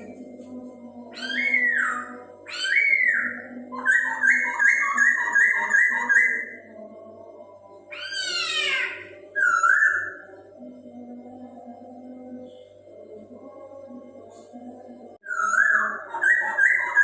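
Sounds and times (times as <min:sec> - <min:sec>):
steady low hum: 0:00.0 - 0:17.0
bird singing whistled song: 0:01.2 - 0:06.6, 0:09.3 - 0:10.3, 0:15.2 - 0:17.0.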